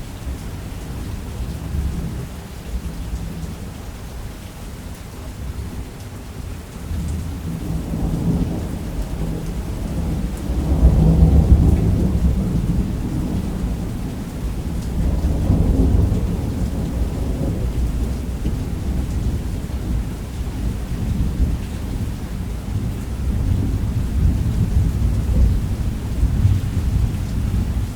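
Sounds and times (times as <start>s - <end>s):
heavy rain: 0.0s - 27.9s
rolling thunder: 7.2s - 27.9s.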